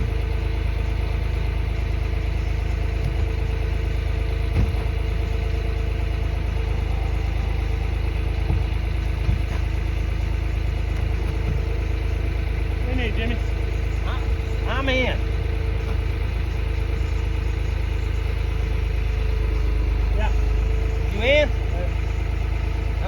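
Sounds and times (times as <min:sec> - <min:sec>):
engine idling: 0:00.0 - 0:23.0
short knocks: 0:08.3 - 0:09.7.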